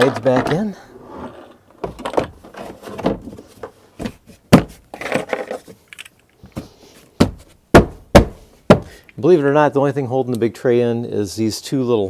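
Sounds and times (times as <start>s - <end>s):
tray scraping and clattering: 0.0s - 3.6s
sharp knocks: 7.2s - 9.0s.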